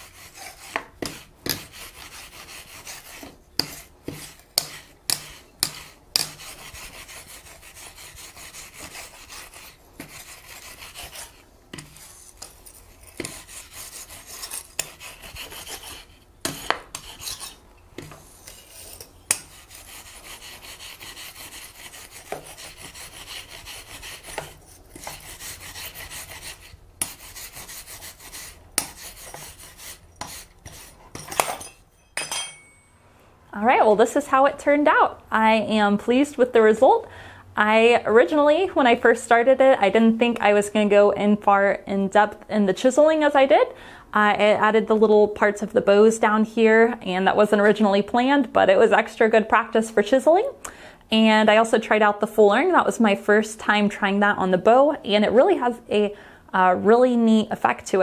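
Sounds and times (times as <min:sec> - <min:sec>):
metal taps and clinks: 0:31.2 - 0:33.0
scraping on metal bell: 0:31.2 - 0:33.1.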